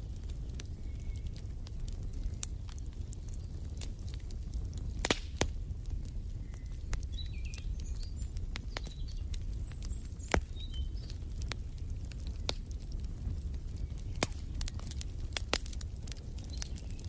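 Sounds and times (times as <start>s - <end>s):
wood fire crackling: 0.0s - 17.0s
faint bird chirps: 6.4s - 11.2s.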